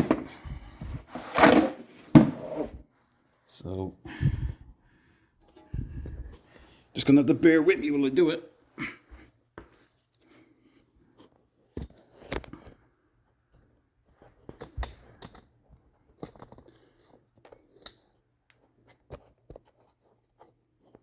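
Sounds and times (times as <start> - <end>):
person shifting on the ground: 0.0 - 2.7.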